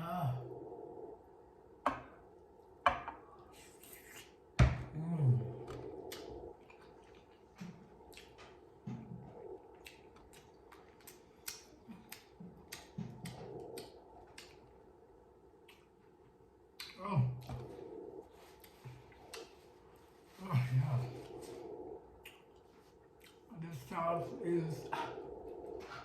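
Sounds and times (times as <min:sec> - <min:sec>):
chewing and lip smacks: 0:05.7 - 0:14.9, 0:15.6 - 0:20.3, 0:21.2 - 0:23.5.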